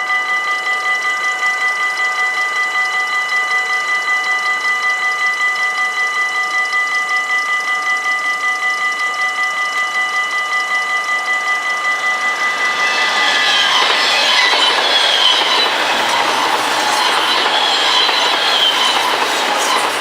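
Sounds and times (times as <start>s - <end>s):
train wheels squealing: 0.0s - 20.0s
level-crossing bells ringing: 8.3s - 20.0s
train wheels clattering: 11.7s - 20.0s.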